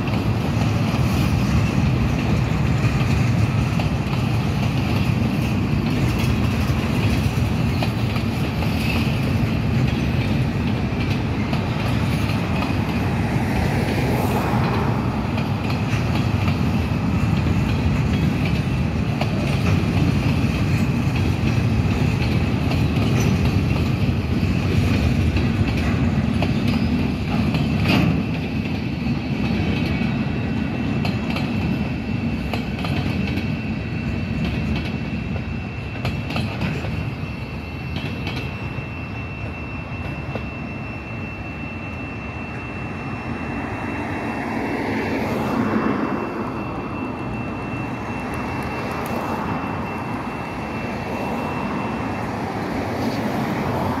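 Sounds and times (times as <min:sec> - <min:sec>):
train wheels clacking over rail joints: 0:00.0 - 0:41.0
crossing signal bell ringing: 0:00.0 - 0:54.0
road vehicle passing: 0:12.6 - 0:16.7.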